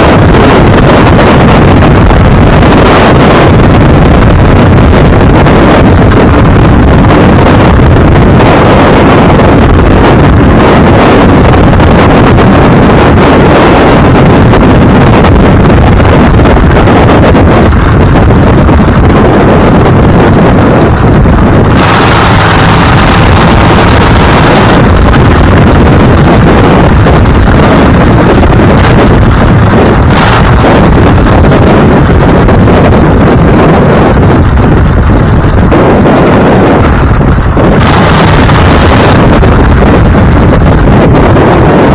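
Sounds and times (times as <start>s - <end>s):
vehicle road and engine noise: 0.0s - 41.9s
wind buffeting microphone: 0.0s - 41.9s.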